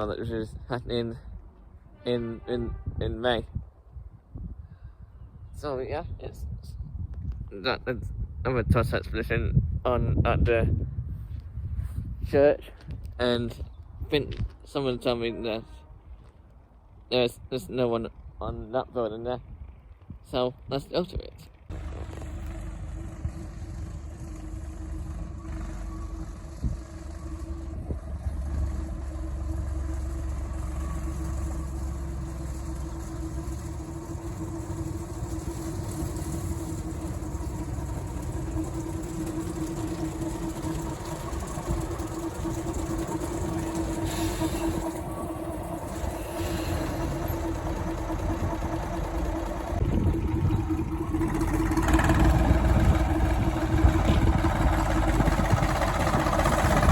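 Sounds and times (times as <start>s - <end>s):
diesel locomotive engine humming: 21.5s - 56.9s.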